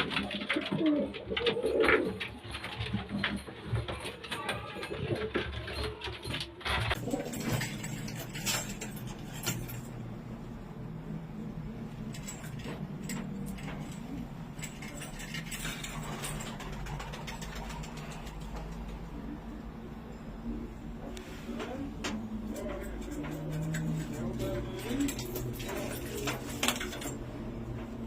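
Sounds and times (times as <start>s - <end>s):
pigeons cooing: 0.0s - 3.2s.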